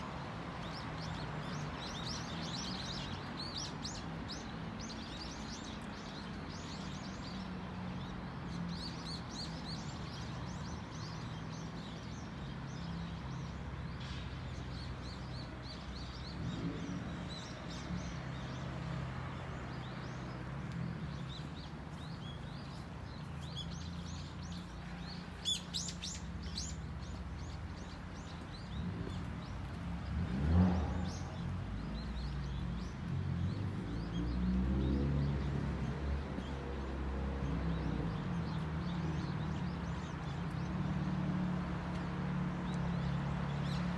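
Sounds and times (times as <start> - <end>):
small birds chirping: 0.6 - 43.9.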